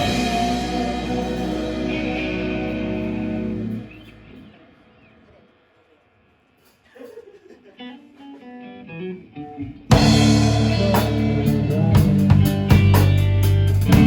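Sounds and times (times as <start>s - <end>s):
plucked guitar notes: 0.0s - 4.3s
rock band playing: 0.0s - 4.6s, 8.0s - 14.0s.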